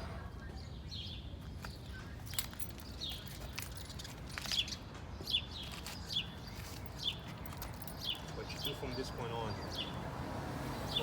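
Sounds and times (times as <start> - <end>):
bird chirping: 0.3 - 10.0.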